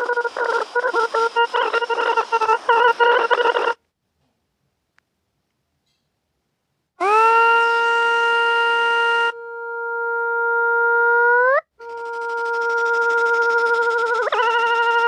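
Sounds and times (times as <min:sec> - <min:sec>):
buzzy horn-like synthesized tone: 0:00.0 - 0:03.8, 0:07.0 - 0:15.0
hissy noise: 0:00.0 - 0:03.8.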